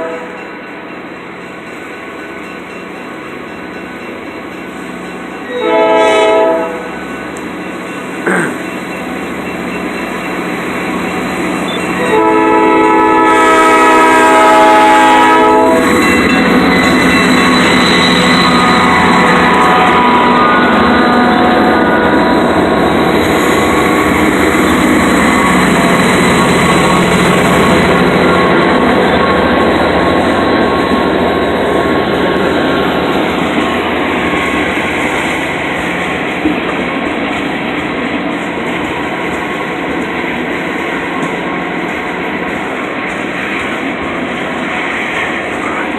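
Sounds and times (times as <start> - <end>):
locomotive air horn chord: 0.0 - 0.4, 5.5 - 6.9, 12.0 - 16.0, 18.3 - 22.2
train rumble: 0.0 - 45.9.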